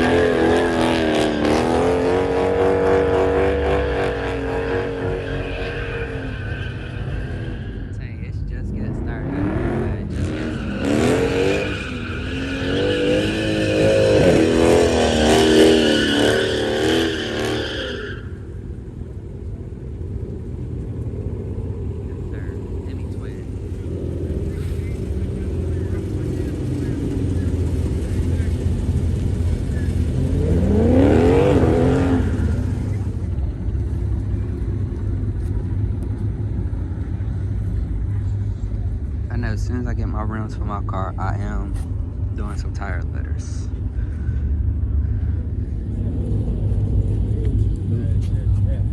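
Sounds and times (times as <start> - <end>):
car engine revving hard: 0.0 - 7.9, 8.5 - 18.3, 22.1 - 34.5
low engine rumble: 1.6 - 10.8, 18.1 - 48.9
tyres squealing: 2.5 - 8.0, 10.1 - 18.5.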